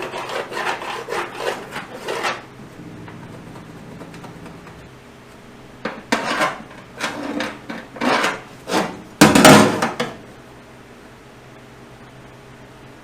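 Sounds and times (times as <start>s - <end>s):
knocks and scrapes: 5.8s - 9.0s.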